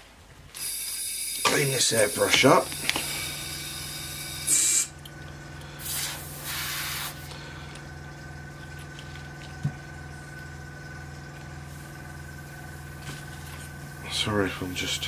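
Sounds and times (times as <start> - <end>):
steady low hum: 0.0 - 15.0
airbrush hissing air: 0.6 - 4.9, 5.8 - 7.3.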